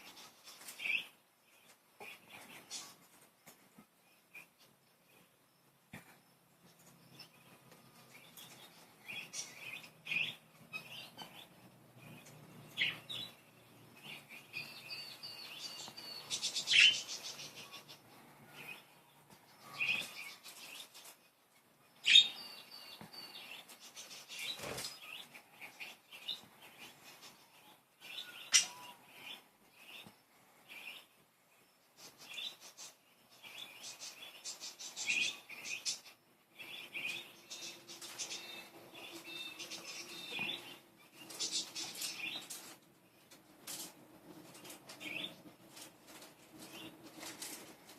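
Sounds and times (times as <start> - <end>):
budgerigars chirping and warbling: 9.2 - 13.3, 14.0 - 18.0, 22.0 - 22.4, 28.1 - 30.0, 32.0 - 42.6.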